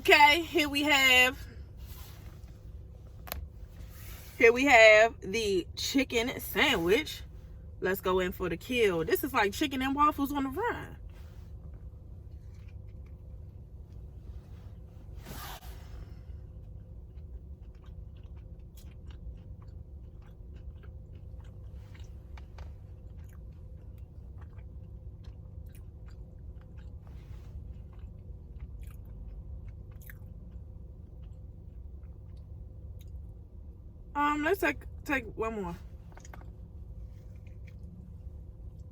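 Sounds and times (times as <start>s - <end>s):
steady low hum: 0.0s - 38.9s
person eating a sandwich: 11.1s - 33.4s
chewing with wet mouth clicks: 11.6s - 14.1s, 16.5s - 33.4s, 36.1s - 38.9s.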